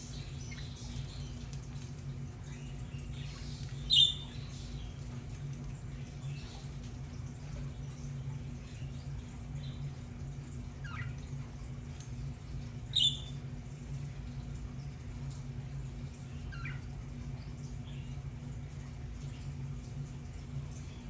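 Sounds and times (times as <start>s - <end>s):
steady low hum: 0.0s - 21.0s
budgerigars chirping: 3.9s - 4.4s, 13.0s - 13.3s.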